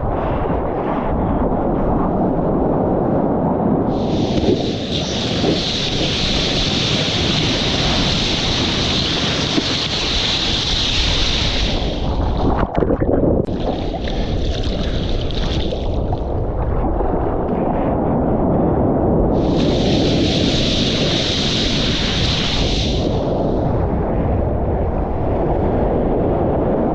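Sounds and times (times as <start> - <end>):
wind buffeting microphone: 0.0 - 26.9
lake surf rushing and splashing: 3.9 - 12.8, 13.5 - 16.5, 19.4 - 23.7.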